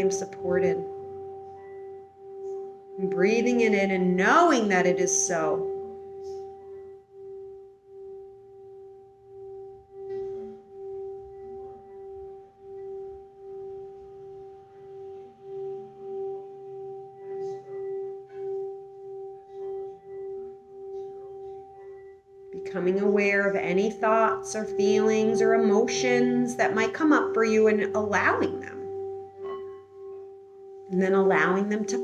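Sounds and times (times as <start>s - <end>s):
singing bowl ringing tone: 0.0s - 32.0s.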